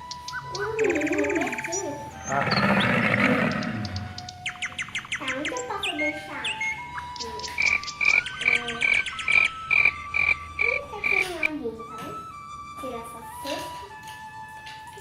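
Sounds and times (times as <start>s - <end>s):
frog croaking and chirping: 0.0s - 11.5s.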